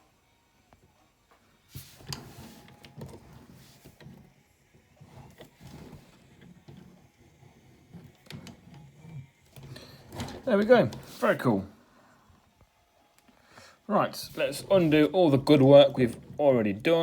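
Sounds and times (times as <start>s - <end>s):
plastic toy rustling: 1.7s - 11.7s, 14.2s - 17.0s.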